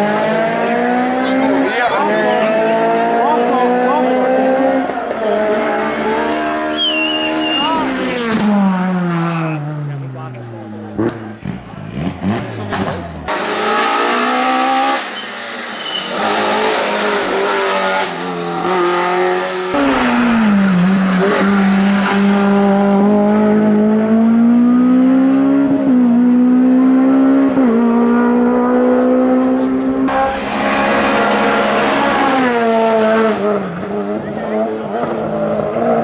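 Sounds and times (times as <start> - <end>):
racing car engines at full throttle: 0.0 - 36.0.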